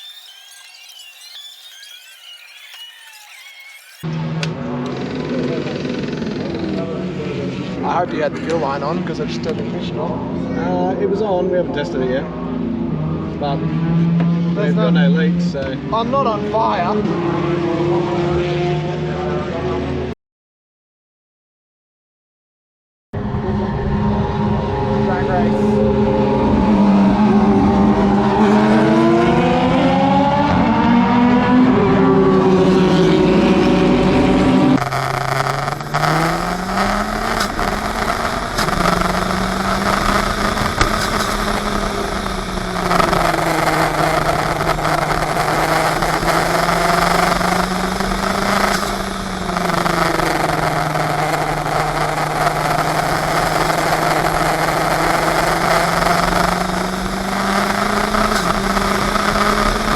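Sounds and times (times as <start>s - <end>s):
race car engine shifting gears: 33.0s - 59.9s.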